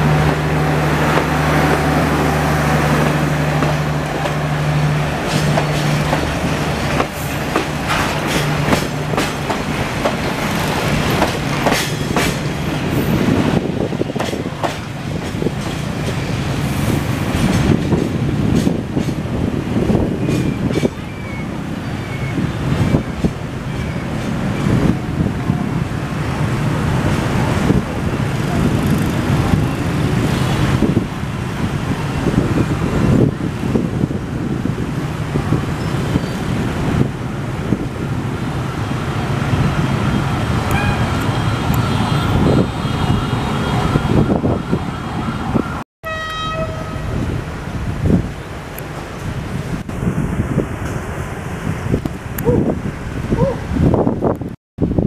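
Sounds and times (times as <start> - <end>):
train wheels rumbling and knocking: 0.0 - 45.8
train horn: 40.7 - 47.3.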